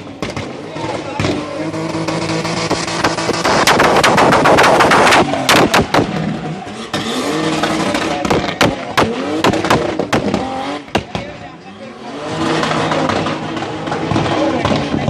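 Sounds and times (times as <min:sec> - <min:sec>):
car engine revving high: 0:00.0 - 0:15.0
exhaust cracks and pops: 0:00.2 - 0:06.3.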